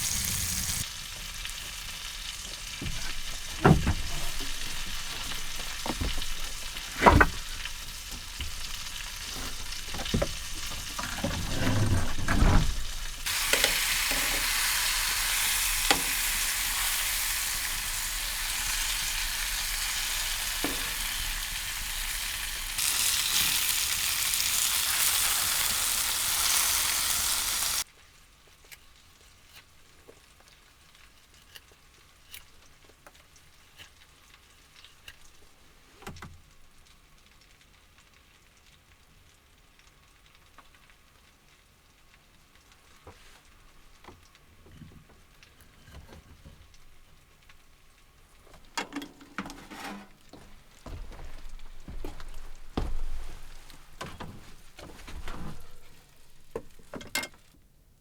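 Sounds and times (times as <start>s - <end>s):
food sizzling in a frying pan: 0.0s - 5.8s, 13.1s - 28.6s
utensil knocking: 2.8s - 14.4s.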